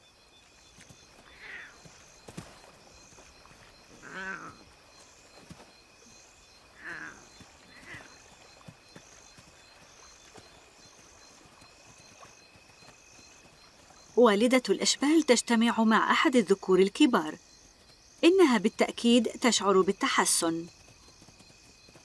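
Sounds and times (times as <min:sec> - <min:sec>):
high insect drone: 0:00.0 - 0:22.0
insects chirping: 0:00.0 - 0:22.0
short falling animal calls: 0:01.2 - 0:01.9, 0:06.8 - 0:08.2.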